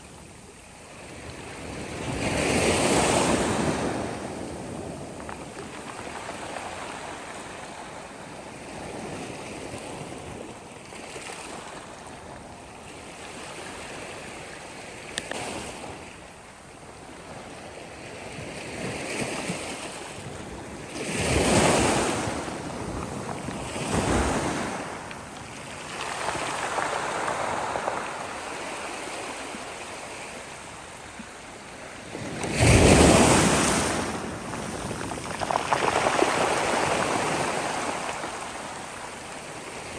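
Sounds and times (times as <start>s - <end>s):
sea waves washing ashore: 19.3s - 39.9s.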